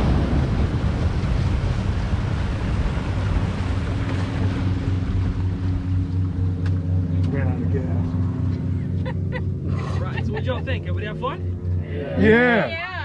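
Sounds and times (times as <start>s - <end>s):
rush of air and water: 0.0s - 10.0s
airboat engine hum: 0.0s - 13.0s.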